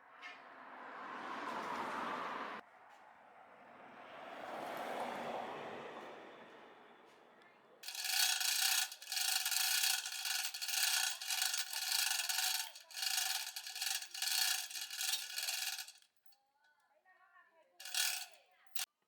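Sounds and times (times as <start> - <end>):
tool rasping on hard surface: 7.8 - 16.0.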